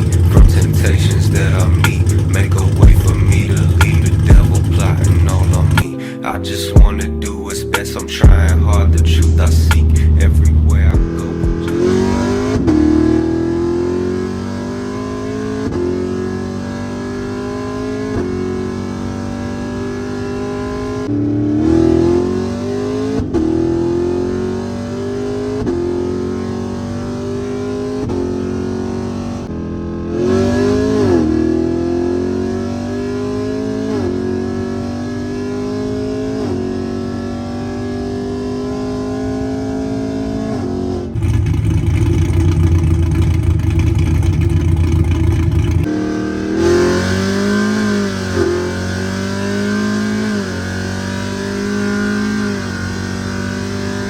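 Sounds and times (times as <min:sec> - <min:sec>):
low steady engine rumble: 0:00.0 - 0:06.1, 0:06.8 - 0:11.8, 0:41.2 - 0:45.9
car engine accelerating: 0:00.0 - 0:54.0.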